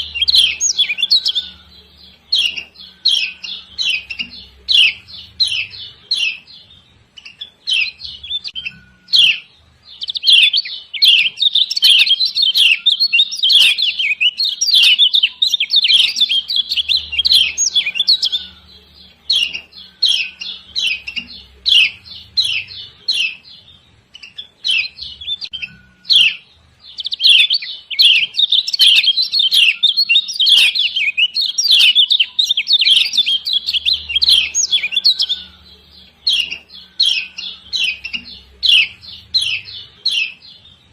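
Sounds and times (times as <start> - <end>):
bird chirping: 0.0 - 40.9.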